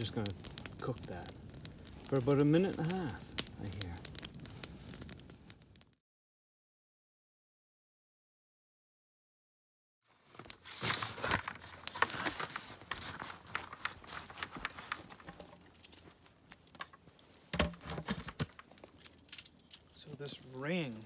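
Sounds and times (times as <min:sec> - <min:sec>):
crinkling plastic: 0:00.0 - 0:05.7, 0:10.1 - 0:21.0
gear handling clicks and knocks: 0:10.4 - 0:20.0.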